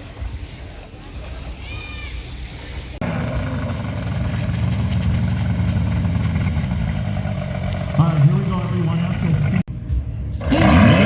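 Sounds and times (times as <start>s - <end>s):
engine droning: 2.5s - 11.0s.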